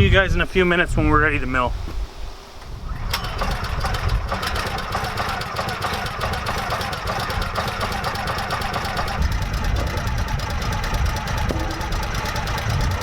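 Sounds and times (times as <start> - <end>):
sawmill gasoline engine running: 2.9 - 13.0.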